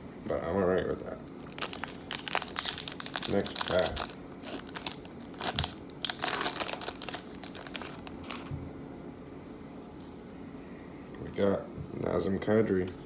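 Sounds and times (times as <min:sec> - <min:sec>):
wrapper tearing and crinkling: 0:01.4 - 0:08.5.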